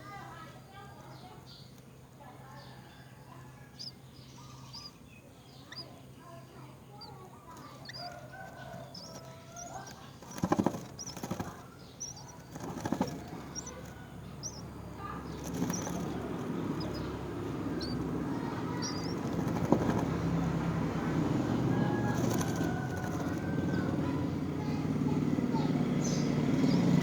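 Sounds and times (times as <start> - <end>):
rough rustling: 7.5 - 24.4
wing flapping: 7.5 - 27.0.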